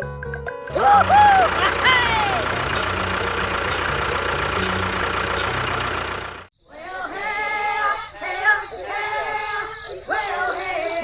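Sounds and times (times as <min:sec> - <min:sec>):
motor running: 0:00.7 - 0:06.5.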